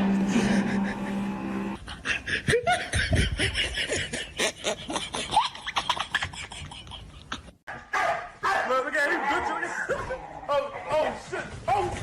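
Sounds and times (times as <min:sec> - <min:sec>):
person laughing: 0:00.3 - 0:07.6.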